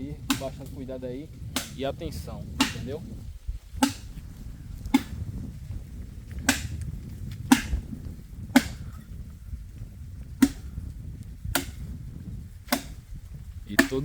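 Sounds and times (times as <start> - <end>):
low steady rumble: 0.0 - 14.0
blade chopping dry branch: 0.2 - 0.8, 1.4 - 1.9, 2.5 - 3.0, 3.7 - 4.2, 4.8 - 5.4, 6.2 - 9.0, 10.3 - 12.0, 12.6 - 14.0.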